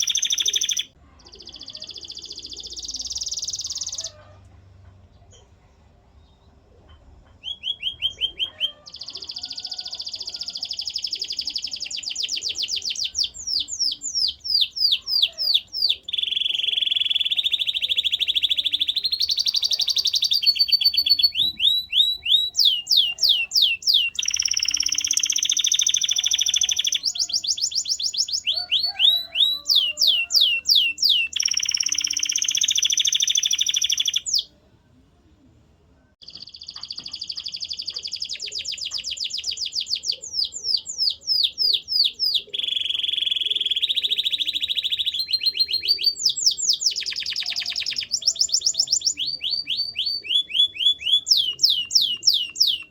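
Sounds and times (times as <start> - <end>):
canary singing rapid trills: 0.0 - 4.3, 7.4 - 34.5, 36.2 - 52.9.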